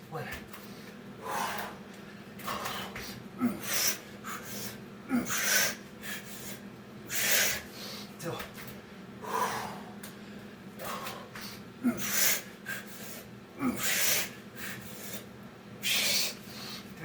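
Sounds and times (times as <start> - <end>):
man grunting: 3.4 - 3.7, 5.1 - 5.5, 11.8 - 12.2, 13.6 - 14.1.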